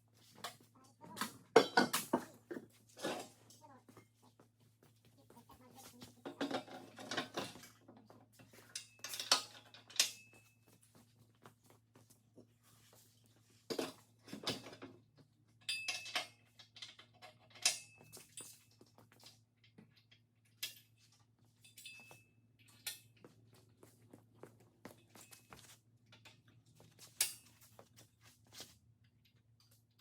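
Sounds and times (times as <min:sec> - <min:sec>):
metal parts clanking: 0:08.7 - 0:10.3, 0:15.6 - 0:18.6.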